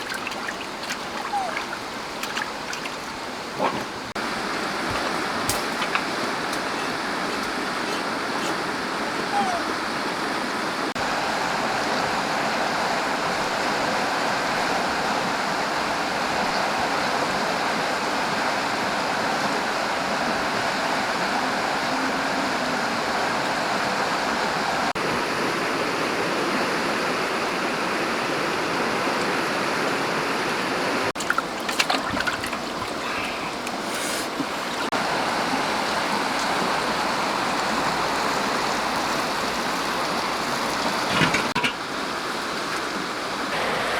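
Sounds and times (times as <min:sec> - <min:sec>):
stream water rushing: 0:00.0 - 0:43.9
sharp splashes or knocks: 0:04.8 - 0:06.7.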